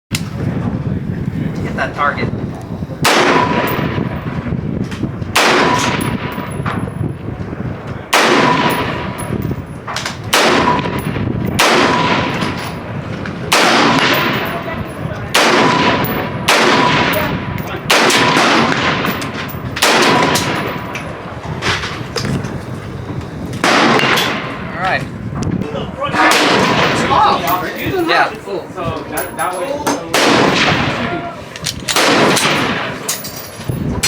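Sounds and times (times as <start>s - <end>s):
loud gunshots with echo: 3.0s - 4.6s, 5.3s - 7.0s, 8.1s - 21.9s, 23.6s - 24.7s, 26.2s - 28.0s, 30.1s - 31.1s, 31.9s - 33.1s
faint distant gunshots: 10.2s - 21.8s.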